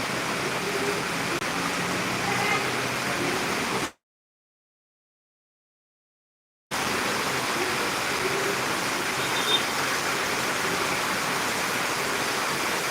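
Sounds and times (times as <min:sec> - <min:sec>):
heavy rain hissing: 0:00.0 - 0:04.0, 0:06.7 - 0:12.9
faint high chirp: 0:09.2 - 0:09.7.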